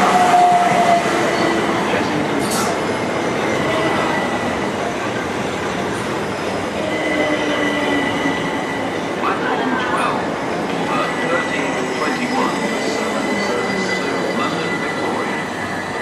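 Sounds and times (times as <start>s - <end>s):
train rumbling: 0.0s - 16.0s
high wheel squeal: 11.2s - 16.0s.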